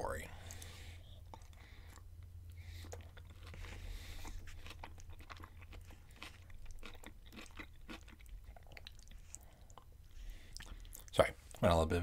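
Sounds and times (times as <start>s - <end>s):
wet crunchy chewing: 0.5s - 9.9s.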